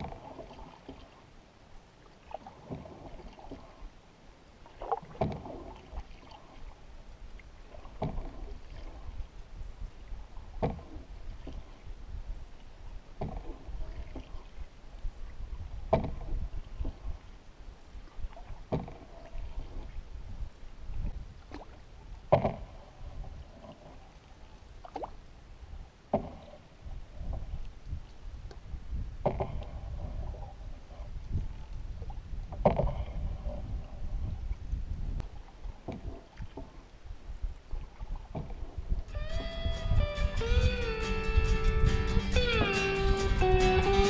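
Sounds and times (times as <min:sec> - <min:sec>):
small splashes and drips: 0:00.0 - 0:01.3, 0:04.6 - 0:06.8, 0:23.6 - 0:25.2
paddle splashing water: 0:00.0 - 0:40.6.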